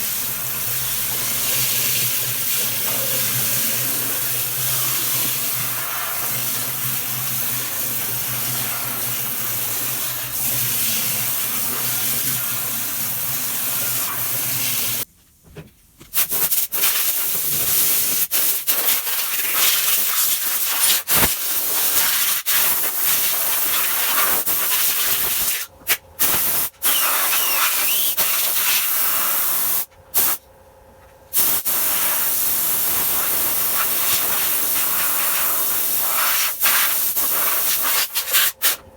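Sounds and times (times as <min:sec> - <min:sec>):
water spraying hard: 0:00.0 - 0:15.0, 0:31.6 - 0:38.6.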